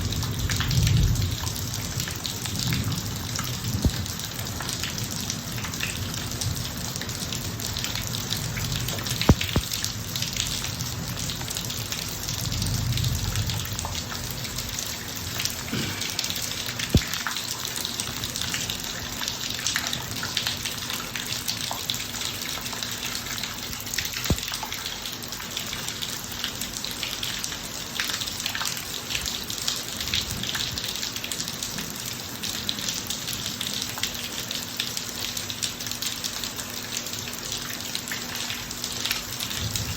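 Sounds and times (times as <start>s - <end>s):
steady rain on a driveway: 0.0s - 39.9s
sharp drip knocks: 3.8s - 4.2s, 8.9s - 9.8s, 15.7s - 17.5s.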